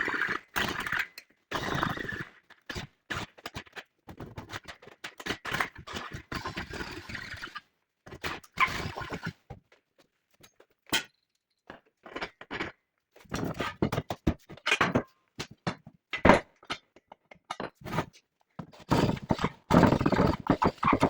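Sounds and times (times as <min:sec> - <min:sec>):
metal parts knocking and clunking: 0:12.0 - 0:21.0.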